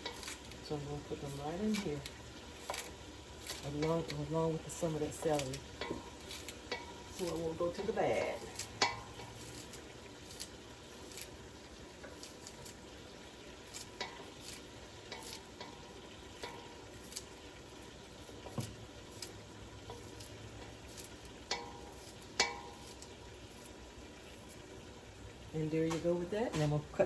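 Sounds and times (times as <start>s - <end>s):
food sizzling in a pot: 0.0s - 27.0s
utensil clinking against pot: 4.8s - 9.4s, 21.4s - 23.1s.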